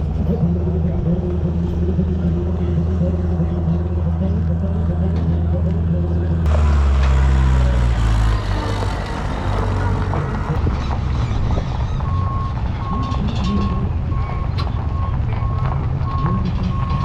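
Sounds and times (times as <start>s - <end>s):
heavy vehicle engine running: 0.0s - 17.0s
reversing alarm beeping: 12.0s - 17.0s.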